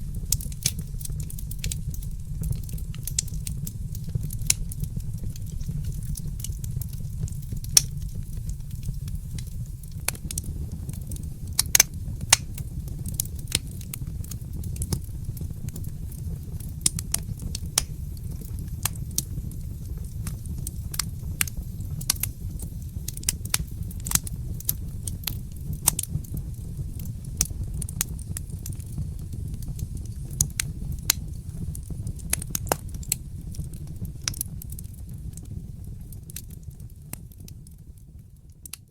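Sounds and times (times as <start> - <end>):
fire crackling and popping: 0.0 - 38.9.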